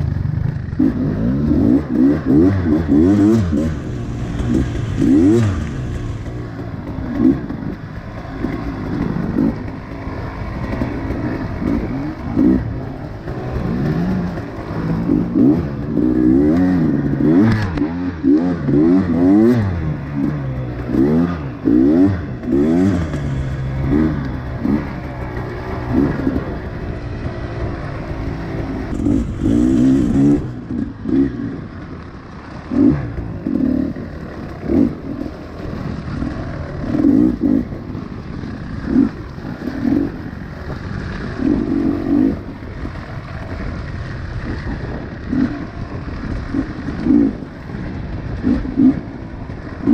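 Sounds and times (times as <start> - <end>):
pit bike engine revving: 0.0 - 49.9.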